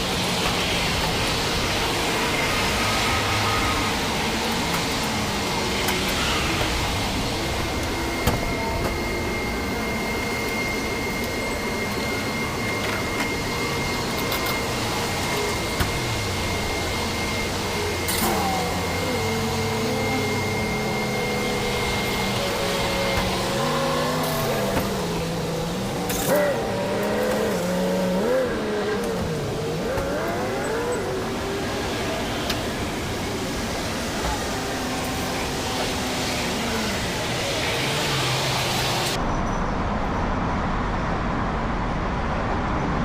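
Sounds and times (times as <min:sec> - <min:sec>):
rushing water spray or blowers: 0:00.0 - 0:39.2
thin steady whine: 0:00.0 - 0:43.0.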